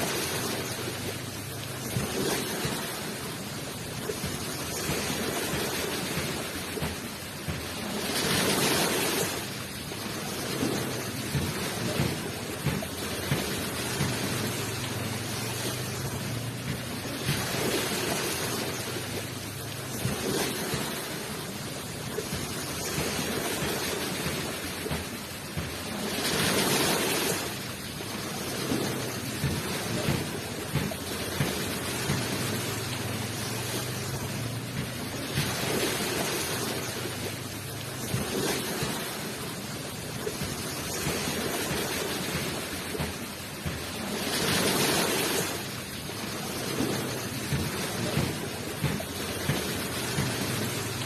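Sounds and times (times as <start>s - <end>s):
waves rushing onto shore: 0.0s - 51.0s.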